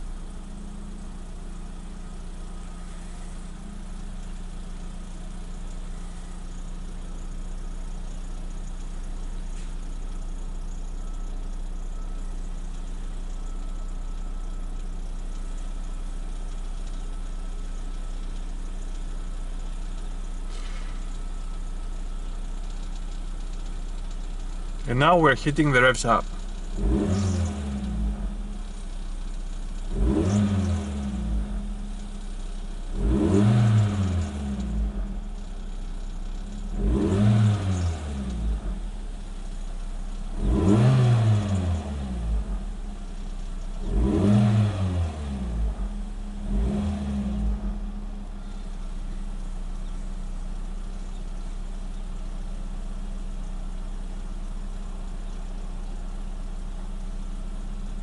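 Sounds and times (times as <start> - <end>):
car engine idling: 0.0 - 58.0
car engine revving: 23.5 - 58.0.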